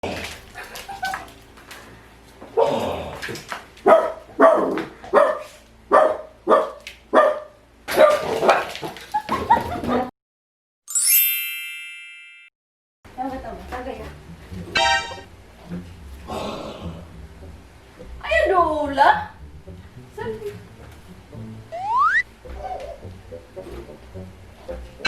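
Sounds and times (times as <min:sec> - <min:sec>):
dogs barking and yipping: 0:03.8 - 0:09.0
bright ringing tone: 0:10.9 - 0:12.5.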